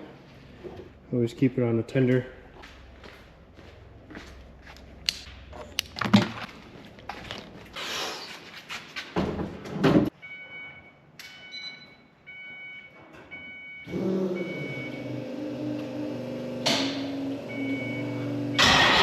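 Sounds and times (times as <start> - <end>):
dashboard warning chime beeping: 10.2 - 15.2, 17.4 - 18.6
truck engine starting and running: 13.6 - 19.0.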